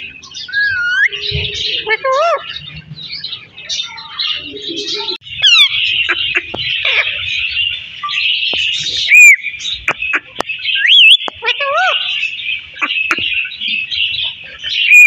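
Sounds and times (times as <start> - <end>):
parrot chattering and whistling: 5.0 - 7.2, 9.1 - 12.2, 14.2 - 15.0.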